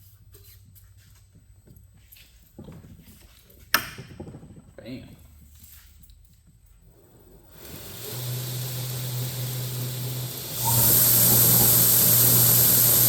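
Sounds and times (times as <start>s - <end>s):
belt grinder motor humming: 7.5s - 13.0s.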